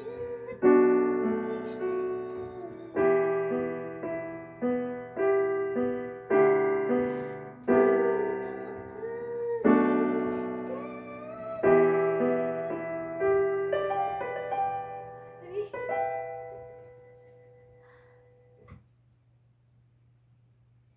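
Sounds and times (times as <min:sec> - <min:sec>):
piano music: 0:00.0 - 0:18.6.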